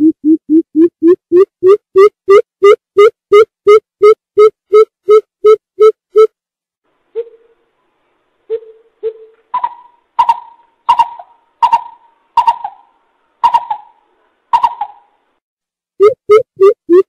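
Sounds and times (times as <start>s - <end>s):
bird hooting: 7.2s - 7.6s, 8.5s - 15.1s.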